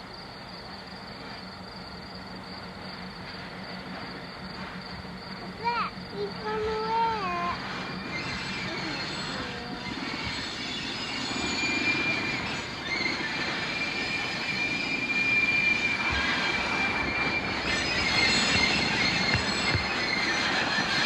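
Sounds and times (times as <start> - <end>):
freight train rolling: 0.0 - 21.0
high-pitched wheel squeal: 6.9 - 21.0.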